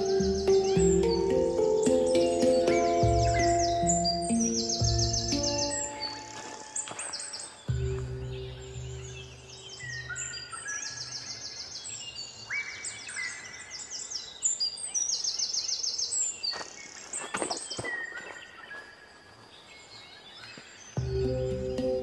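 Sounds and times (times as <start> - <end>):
low sustained musical tone: 0.0 - 11.8, 21.0 - 22.0
birds whistling and trilling: 0.0 - 19.0.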